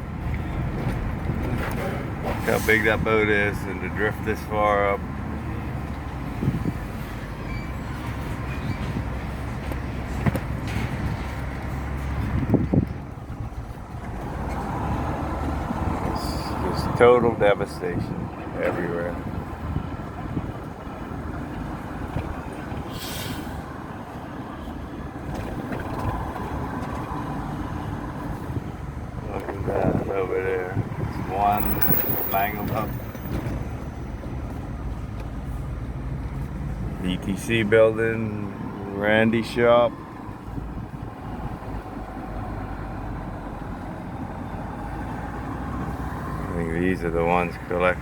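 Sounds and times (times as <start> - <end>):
engine and road rumble: 0.0 - 48.0
brief hiss: 22.9 - 23.6.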